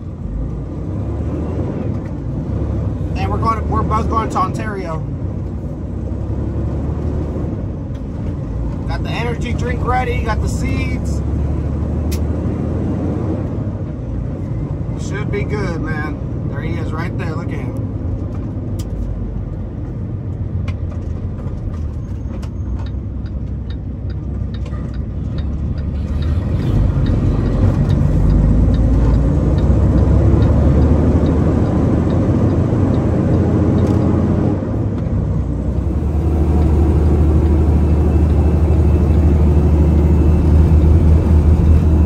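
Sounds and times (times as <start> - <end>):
truck diesel engine: 0.0 - 42.0
light regular ticking: 22.8 - 34.2.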